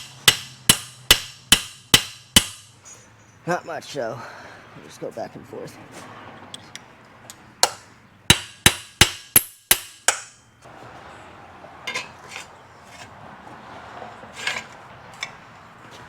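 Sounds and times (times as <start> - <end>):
hammer blows on metal: 0.0 - 2.7.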